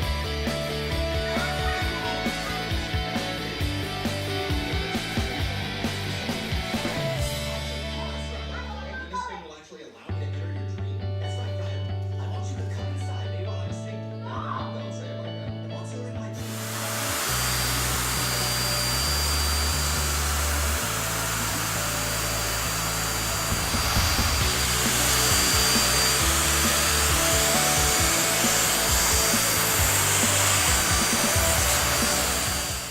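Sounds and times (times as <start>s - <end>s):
vacuum cleaner running: 0.0s - 8.0s, 16.4s - 32.9s
background music: 0.0s - 32.9s.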